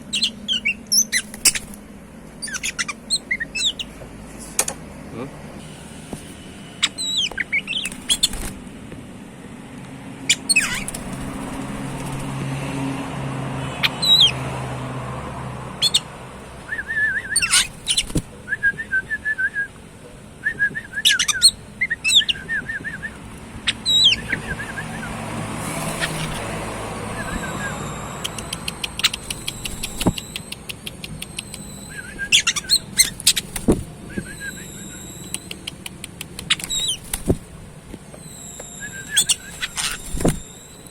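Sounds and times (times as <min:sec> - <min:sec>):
bird singing: 0:00.0 - 0:01.8, 0:02.4 - 0:04.0, 0:06.8 - 0:08.5, 0:10.2 - 0:12.2, 0:13.7 - 0:14.8, 0:15.6 - 0:18.2, 0:20.4 - 0:37.2, 0:38.1 - 0:40.9.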